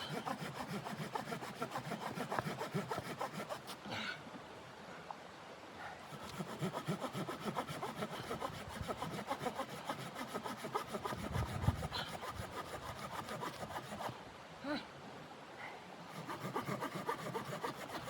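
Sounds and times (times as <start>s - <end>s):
hand saw cutting wood: 0.0s - 3.8s, 6.1s - 14.2s, 16.1s - 18.0s.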